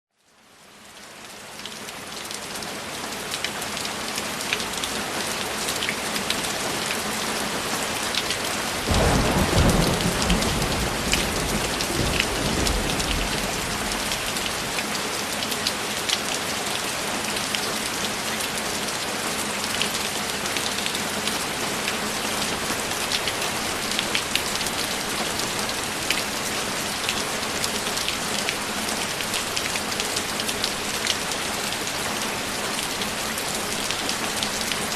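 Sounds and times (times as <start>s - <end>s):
heavy rain: 0.2s - 34.9s
thunder rumbling: 8.9s - 14.8s.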